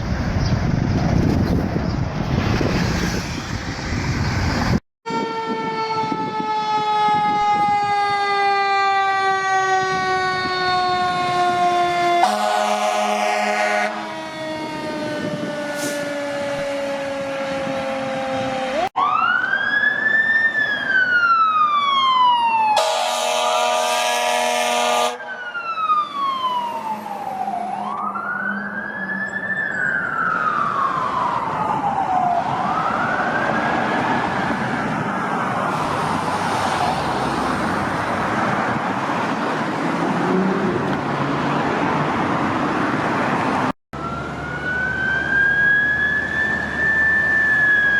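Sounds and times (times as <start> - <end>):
emergency siren wailing: 2.6 - 47.9
air horn blast: 12.2 - 14.2, 15.2 - 16.7, 22.8 - 25.2.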